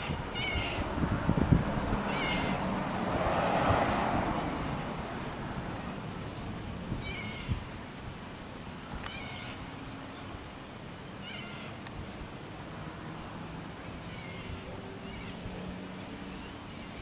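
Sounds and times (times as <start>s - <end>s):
meow-like animal cries: 0.0s - 0.8s, 2.1s - 2.6s, 11.2s - 11.8s.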